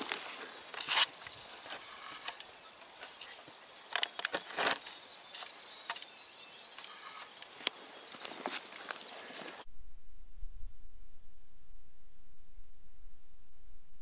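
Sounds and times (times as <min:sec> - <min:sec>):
small birds chirping: 0:00.0 - 0:09.6
rustles: 0:00.0 - 0:09.7
faint outdoor hiss: 0:00.0 - 0:14.0.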